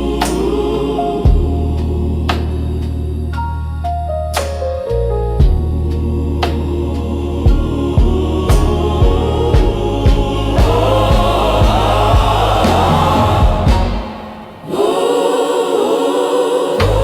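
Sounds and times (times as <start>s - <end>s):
choir singing: 0.0s - 3.5s, 5.7s - 17.0s
bass and drum beat: 0.0s - 4.6s, 5.4s - 14.1s.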